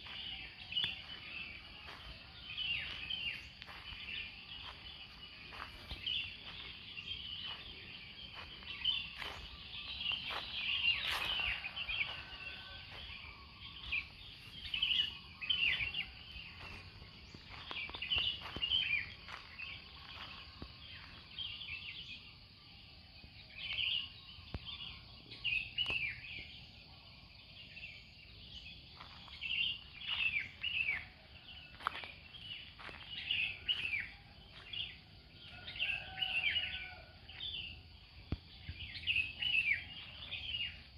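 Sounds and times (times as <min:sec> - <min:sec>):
birds chirping and calling: 0:00.0 - 0:20.2.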